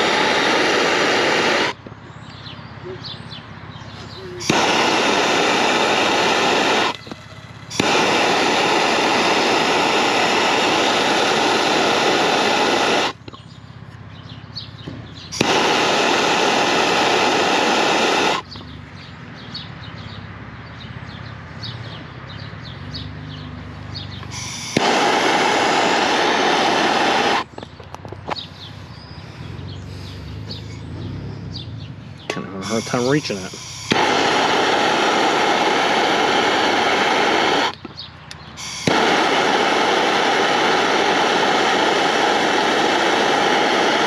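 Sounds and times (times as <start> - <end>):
torch flame hissing: 0.0 - 1.8, 3.9 - 13.2, 15.3 - 18.5, 23.8 - 27.6, 32.6 - 44.0
birds chirping faintly: 1.8 - 6.2, 13.2 - 16.2, 18.4 - 33.6, 37.7 - 38.6.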